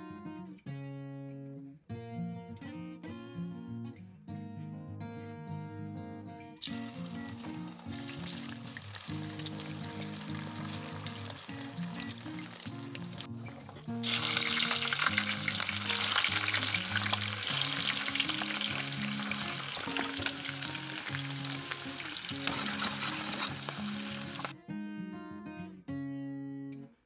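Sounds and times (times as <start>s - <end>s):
food sizzling in a pan: 6.6s - 24.5s
soft background music: 6.6s - 24.5s.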